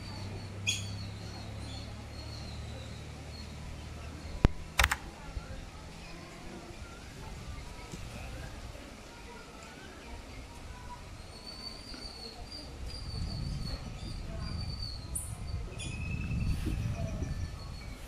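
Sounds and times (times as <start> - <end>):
birds chirping: 0.0 - 7.9.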